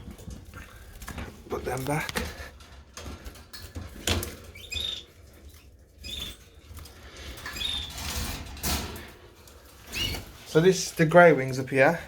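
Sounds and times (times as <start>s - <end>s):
canaries chirping: 3.6s - 8.7s, 9.6s - 11.3s.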